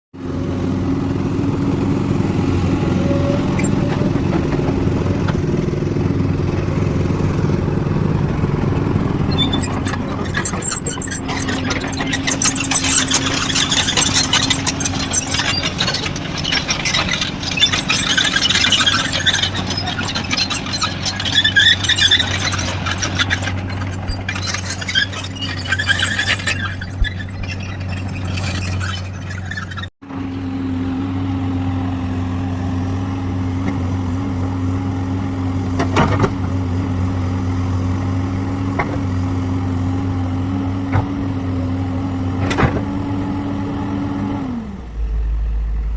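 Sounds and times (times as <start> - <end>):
excavator running: 0.2 - 45.9
high-pitched squealing: 2.8 - 4.3, 9.0 - 29.9.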